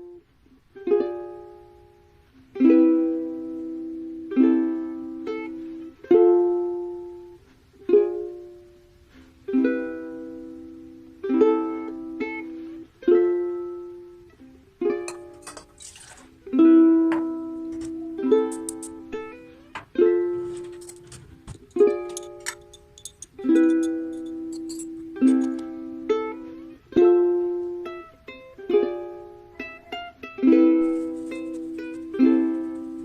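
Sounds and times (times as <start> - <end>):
plucked chords ringing: 13.1 - 15.8, 16.4 - 33.0.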